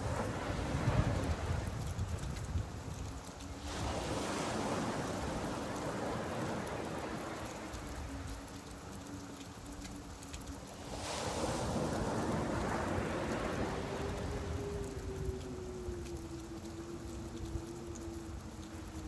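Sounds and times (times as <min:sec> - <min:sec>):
steady rain: 0:00.0 - 0:19.0
waves washing in: 0:00.0 - 0:19.0.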